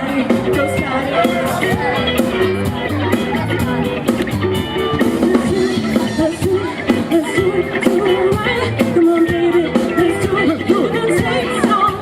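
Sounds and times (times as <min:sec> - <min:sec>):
person singing: 0:00.0 - 0:02.5, 0:05.0 - 0:12.0
drum kit beat: 0:00.0 - 0:12.0
electric guitar: 0:00.0 - 0:12.0
rock band playing: 0:00.0 - 0:12.0.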